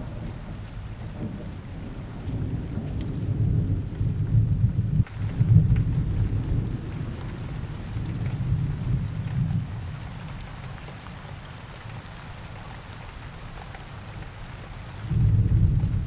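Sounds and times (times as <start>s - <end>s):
rolling thunder: 0.0s - 9.9s, 15.1s - 16.0s
steady rain: 0.0s - 16.0s
raindrops ticking: 5.0s - 11.1s.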